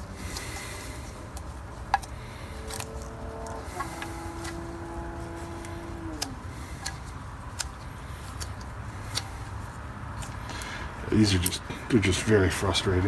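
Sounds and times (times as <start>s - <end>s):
low background rumble: 0.0s - 13.0s
humming tone sliding down: 2.6s - 6.5s.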